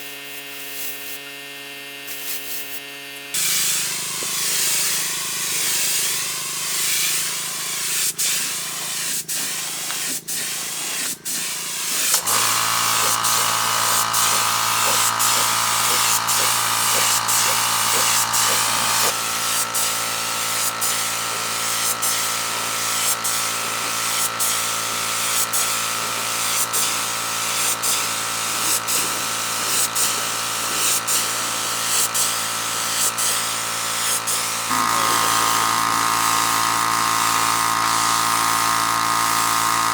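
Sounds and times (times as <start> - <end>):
small electric power tool motor: 0.0 - 39.9
spraying hiss: 3.4 - 21.1, 34.1 - 36.2.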